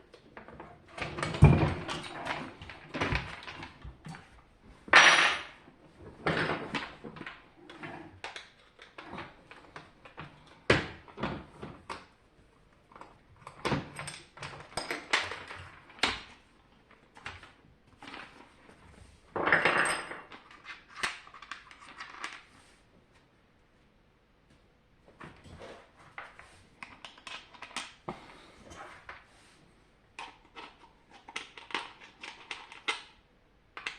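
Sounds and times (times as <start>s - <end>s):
parts and tools clicking and knocking: 12.9s - 16.4s, 30.2s - 33.2s.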